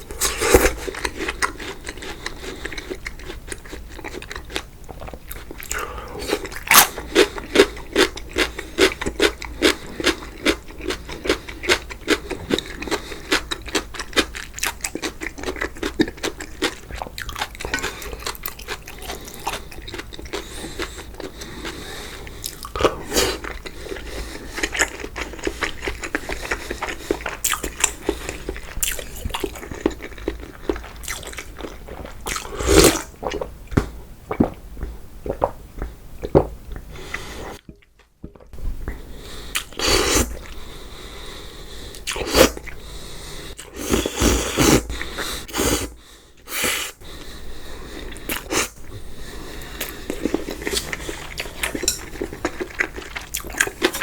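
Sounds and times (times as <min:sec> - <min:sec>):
person chewing noodles: 0:00.0 - 0:54.0
slurps: 0:00.1 - 0:01.2, 0:43.5 - 0:47.0, 0:49.6 - 0:54.0.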